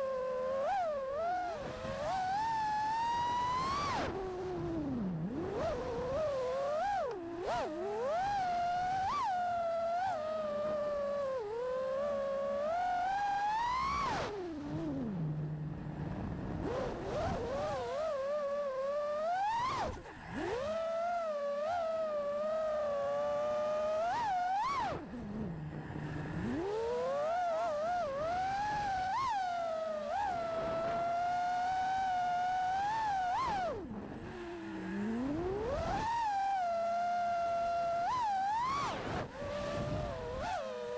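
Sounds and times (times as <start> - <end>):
quadcopter motors whining: 0.0 - 40.9.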